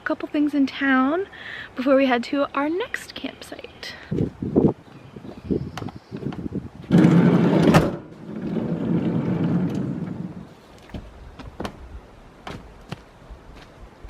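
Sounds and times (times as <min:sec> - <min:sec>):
sliding van door rolling: 0:06.8 - 0:10.5.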